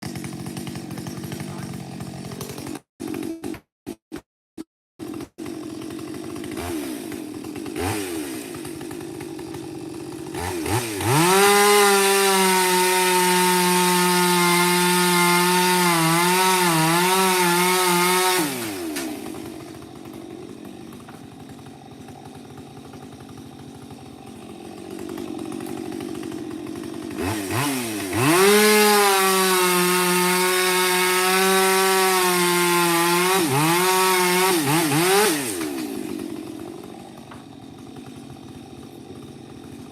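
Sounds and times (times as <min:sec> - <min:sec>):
chainsaw cutting wood: 0:00.0 - 0:04.3, 0:05.0 - 0:39.9.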